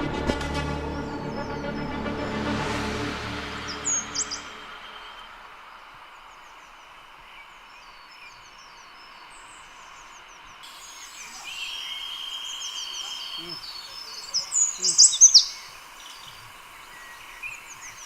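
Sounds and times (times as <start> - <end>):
small birds chirping: 3.5 - 18.0
soft hiss: 4.2 - 18.0
high insect-like whine: 10.6 - 18.0.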